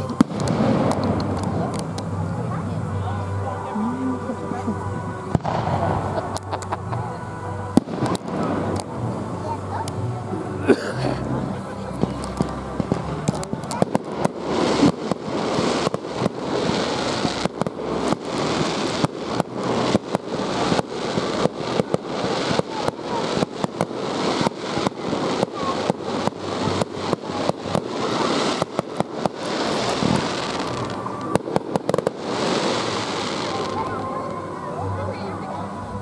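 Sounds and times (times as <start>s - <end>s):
aerial fireworks bangs: 0.0s - 2.6s, 5.3s - 7.0s, 12.0s - 34.0s.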